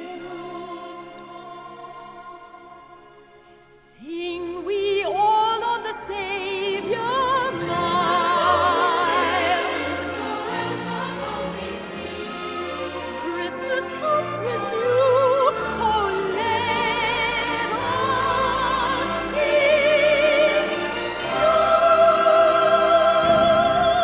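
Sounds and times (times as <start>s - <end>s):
classical singing voice: 0.0s - 24.0s
orchestral accompaniment: 4.8s - 24.0s.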